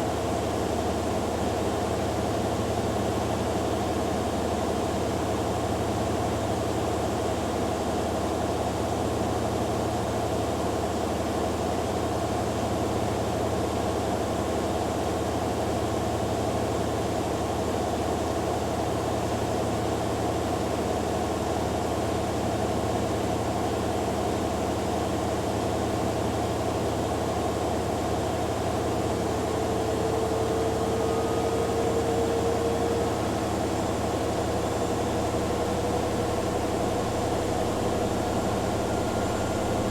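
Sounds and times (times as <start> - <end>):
washing machines spinning: 21.2 - 39.9
higher whine: 27.7 - 39.9.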